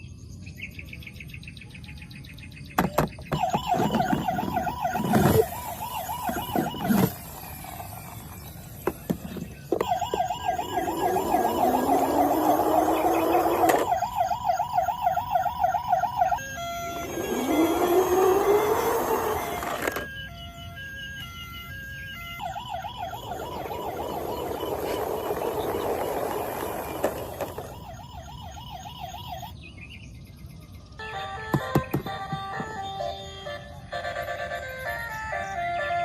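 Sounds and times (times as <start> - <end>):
electronic toy siren wailing: 3.3 - 29.6, 31.0 - 36.0
rising electronic whine: 3.4 - 28.9
plastic clicks and knocks: 31.5 - 32.8.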